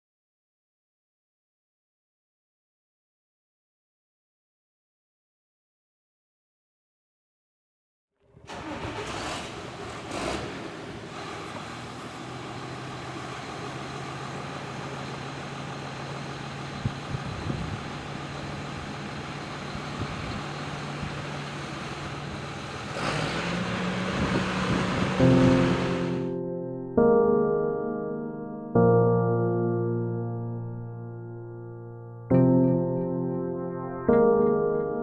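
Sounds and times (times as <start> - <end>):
tractor engine running: 8.3 - 26.3
piano music: 24.9 - 35.0.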